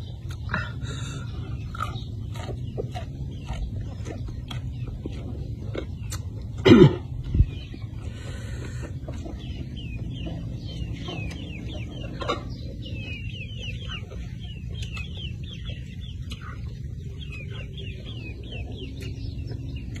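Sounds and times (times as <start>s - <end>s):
birds chirping: 0.0s - 20.0s
steady low rumble: 0.0s - 20.0s.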